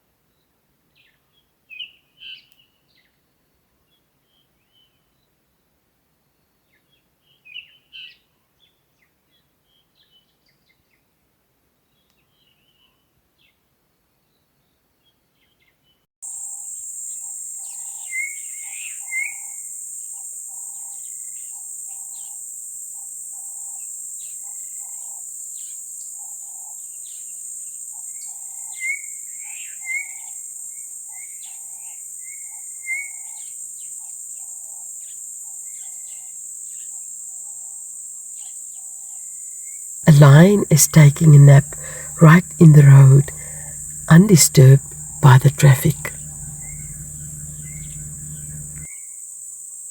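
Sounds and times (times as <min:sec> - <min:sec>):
high insect drone: 0:40.1 - 0:48.9
repeated lower call: 0:40.1 - 0:48.9
bird chirps: 0:44.8 - 0:48.8.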